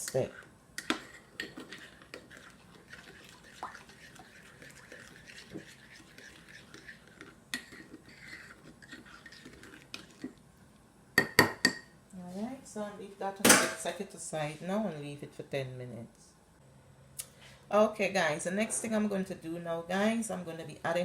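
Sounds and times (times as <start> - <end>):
spoon scraping in a bowl: 0.0 - 10.4.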